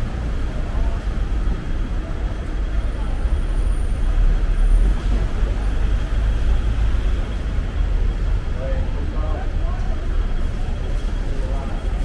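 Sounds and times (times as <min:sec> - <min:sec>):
people talking: 0:08.5 - 0:12.0.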